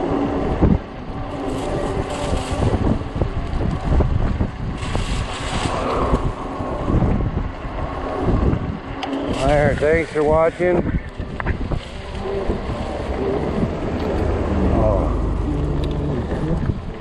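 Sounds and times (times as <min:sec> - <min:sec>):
road and tyre noise: 0:00.0 - 0:17.0
wind buffeting microphone: 0:00.0 - 0:17.0.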